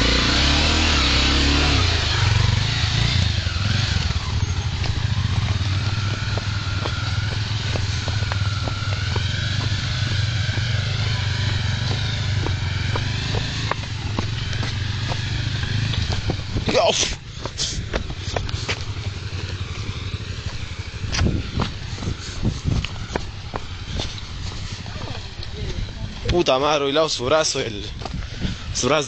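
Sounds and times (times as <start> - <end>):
motorcycle engine running: 0.0 - 26.3.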